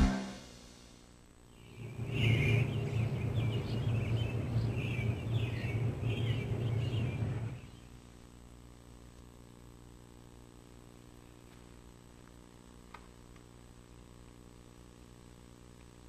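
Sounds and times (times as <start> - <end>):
low outdoor hum: 0.0 - 16.0
birds chirping: 1.5 - 7.9.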